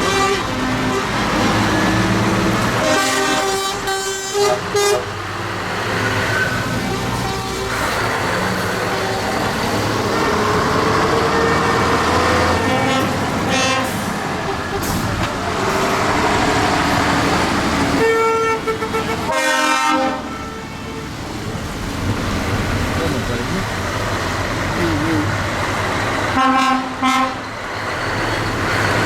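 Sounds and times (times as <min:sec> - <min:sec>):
horn blasts and toots: 0:00.0 - 0:01.9, 0:02.7 - 0:05.3, 0:06.2 - 0:08.0, 0:11.1 - 0:15.0, 0:18.0 - 0:21.2, 0:26.3 - 0:27.5
tractor engines running: 0:00.0 - 0:03.9, 0:04.6 - 0:19.4, 0:20.2 - 0:29.0.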